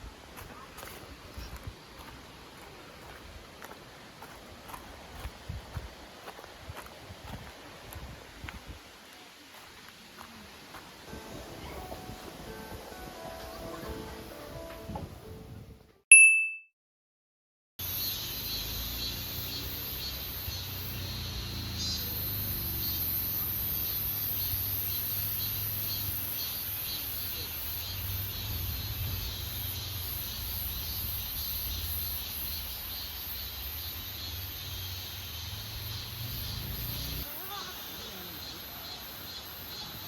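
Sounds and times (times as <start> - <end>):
insects chirring: 17.8 - 40.0.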